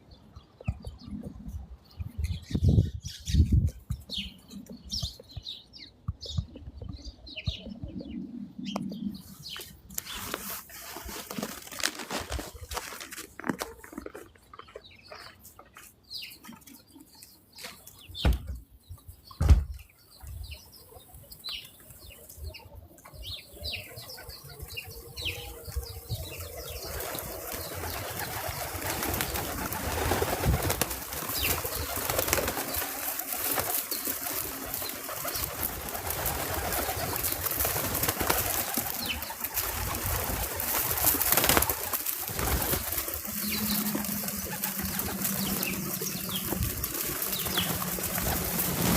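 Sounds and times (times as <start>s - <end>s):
birds chirping: 0.0s - 48.9s
wings fluttering: 9.3s - 14.3s, 25.7s - 48.9s.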